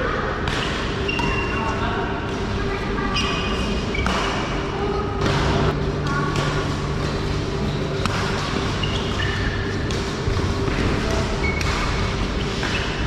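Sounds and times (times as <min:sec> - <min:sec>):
shoe squeaks: 0:01.0 - 0:01.8, 0:03.1 - 0:04.5, 0:08.6 - 0:09.8, 0:11.3 - 0:11.8, 0:12.4 - 0:13.0
racket striking shuttlecock: 0:03.9 - 0:04.6, 0:08.0 - 0:13.0.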